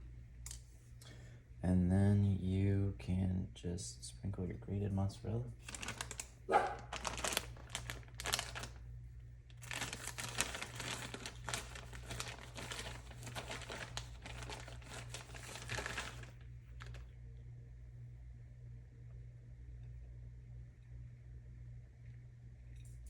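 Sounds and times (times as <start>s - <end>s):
plastic bag crinkling: 5.6s - 8.9s, 9.5s - 17.1s.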